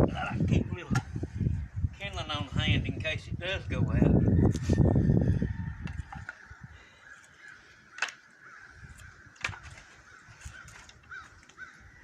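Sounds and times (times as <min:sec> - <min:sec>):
faint bird calls: 0:06.0 - 0:12.0.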